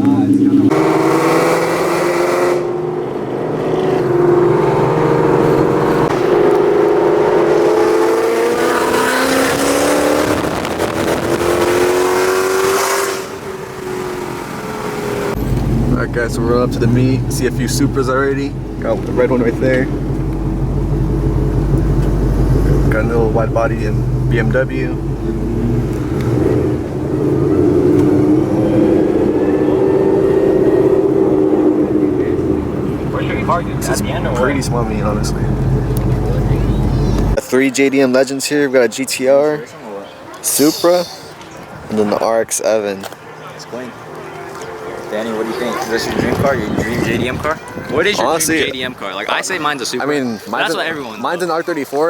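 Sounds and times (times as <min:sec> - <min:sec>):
car engine accelerating: 0:00.0 - 0:37.4.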